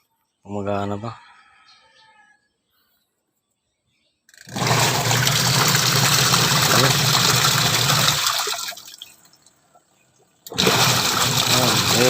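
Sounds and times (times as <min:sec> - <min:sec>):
washing machine motor humming: 0:04.5 - 0:08.8, 0:10.5 - 0:12.0
water churning in tub: 0:04.5 - 0:09.2, 0:10.5 - 0:12.0.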